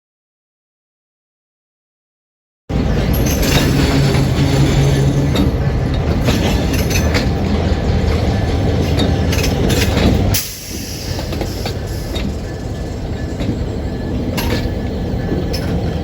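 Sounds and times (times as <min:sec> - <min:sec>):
railroad cars rumbling past: 0:02.7 - 0:16.0
wheels clicking over rails: 0:02.7 - 0:16.0.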